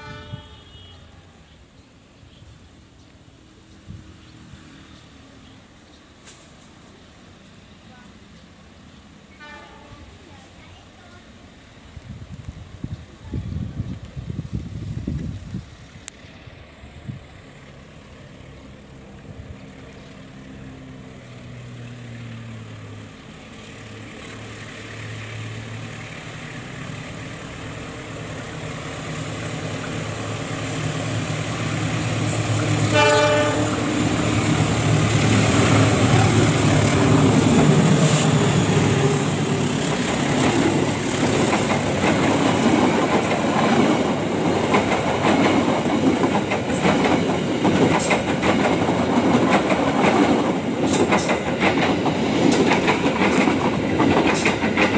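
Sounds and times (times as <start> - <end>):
train horn blast: 0.0 - 1.3, 9.3 - 10.2, 32.4 - 34.3
locomotive engine hum: 0.5 - 54.9
train wheels clattering on rails: 29.3 - 54.9.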